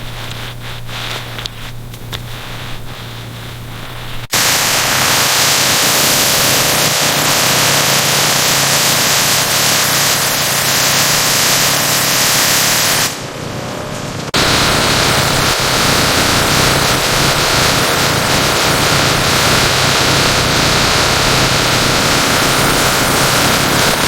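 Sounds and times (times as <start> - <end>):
low hum: 0.0 - 9.5
loud rushing hiss: 0.0 - 24.0.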